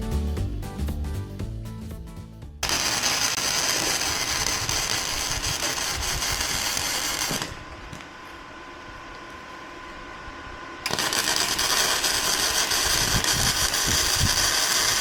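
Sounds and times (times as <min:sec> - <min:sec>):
background music: 0:00.0 - 0:03.1
power tool running: 0:02.6 - 0:08.0, 0:10.8 - 0:15.0.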